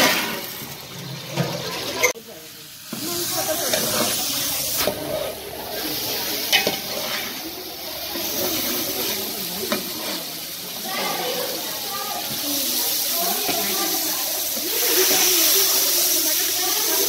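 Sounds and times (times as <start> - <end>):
onions sizzling in oil: 0.0 - 17.0
metal spatula scraping a pot: 3.6 - 7.6, 8.4 - 10.4.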